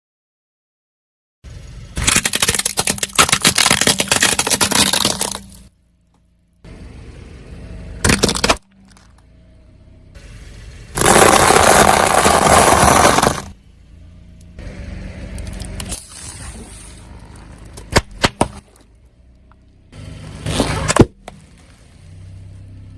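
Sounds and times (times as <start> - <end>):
objects crunching under car tyre: 2.0 - 5.7, 8.0 - 9.2, 11.0 - 13.6, 15.4 - 19.0, 20.0 - 22.4.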